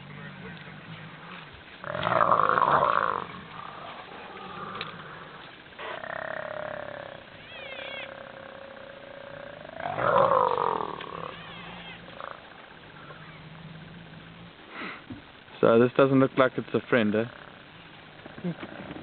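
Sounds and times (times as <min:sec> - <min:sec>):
hyena whining call: 0:01.9 - 0:13.9.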